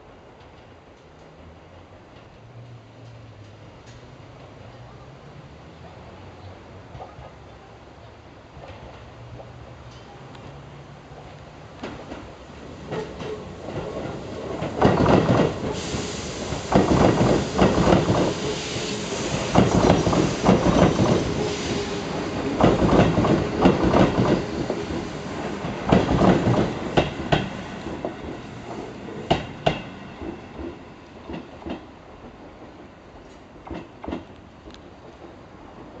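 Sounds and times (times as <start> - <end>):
train rumble: 0.0 - 36.0
wheels clacking over rail joints: 11.2 - 15.9, 19.3 - 31.9.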